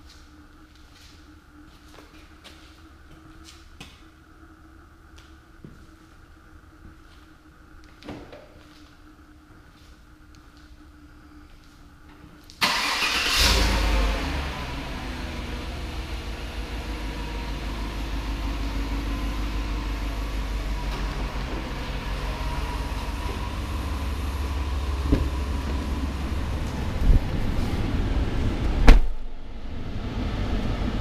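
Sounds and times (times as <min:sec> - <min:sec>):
car engine starting and idling: 0:12.6 - 0:31.0.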